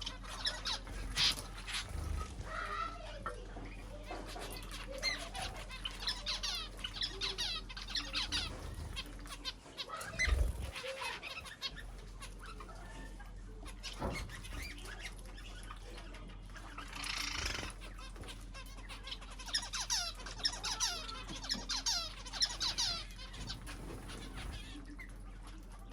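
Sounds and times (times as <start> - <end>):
birds chirping: 0.0 - 25.9.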